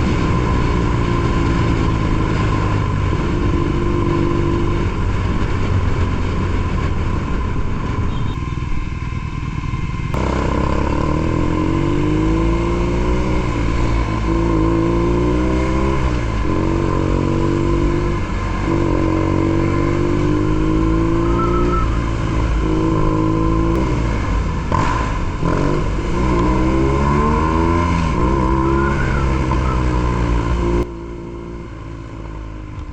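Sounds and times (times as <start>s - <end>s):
motorcycle engine shifting gears: 0.0s - 32.9s.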